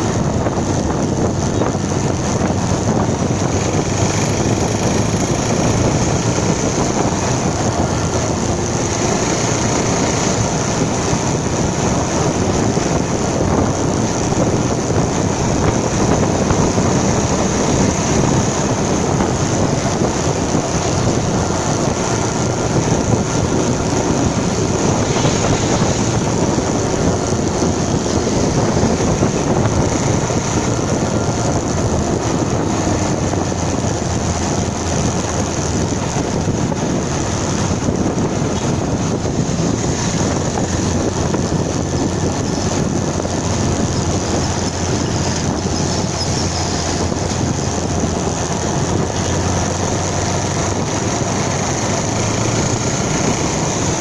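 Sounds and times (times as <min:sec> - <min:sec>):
motorcycle engine: 0:00.0 - 0:54.0
road noise: 0:00.0 - 0:54.0
wind noise on microphone: 0:00.0 - 0:54.0.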